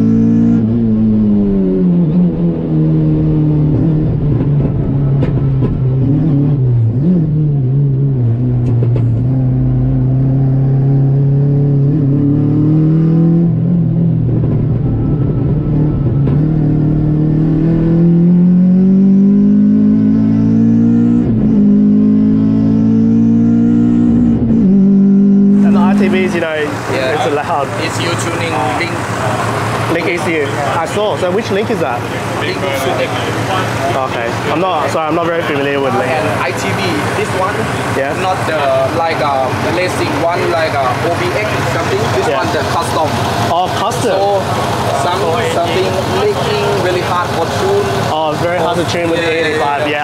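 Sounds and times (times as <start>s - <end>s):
car engine accelerating: 0.0s - 50.0s.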